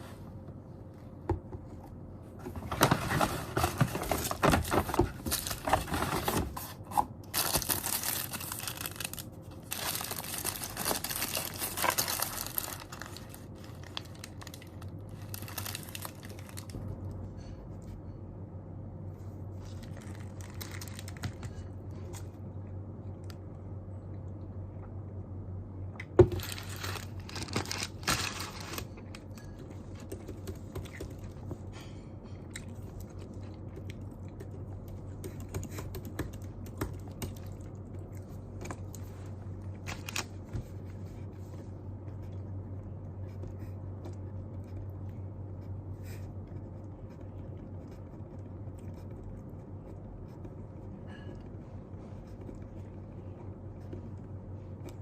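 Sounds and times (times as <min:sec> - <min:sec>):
low room hum: 0:00.0 - 0:55.0
paper rustling: 0:02.4 - 0:16.8.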